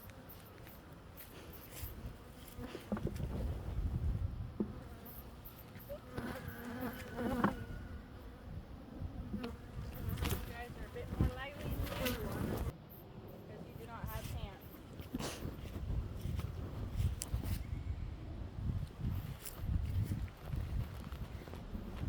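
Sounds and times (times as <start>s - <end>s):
honeybees buzzing: 0.0s - 12.8s.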